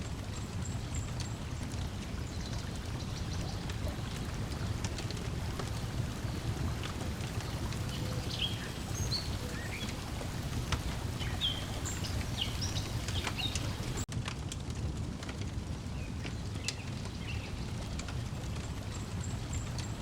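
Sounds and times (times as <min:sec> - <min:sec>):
lake water lapping: 0:00.0 - 0:14.1
wood fire crackling: 0:00.0 - 0:20.0
birds chirping: 0:00.2 - 0:14.1.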